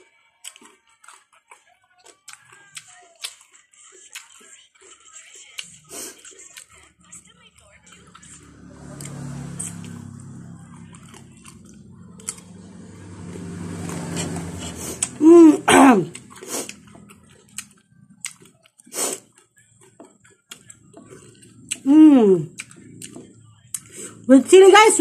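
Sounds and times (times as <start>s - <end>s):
chewing and wet mouth smacks: 0.4s - 6.9s, 10.8s - 12.5s, 16.1s - 21.8s, 22.5s - 24.0s
low hum: 8.2s - 18.4s.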